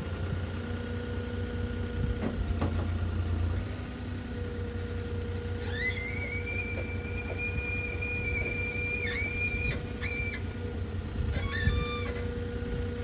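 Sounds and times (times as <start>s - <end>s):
truck engine low rumble: 0.0s - 13.0s.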